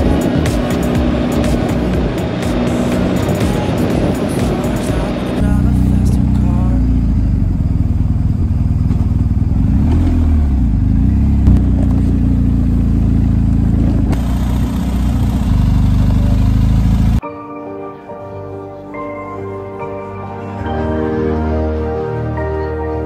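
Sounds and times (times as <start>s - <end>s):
music: 0.0s - 6.9s, 17.2s - 23.0s
motorcycle engine rumbling: 0.0s - 17.2s.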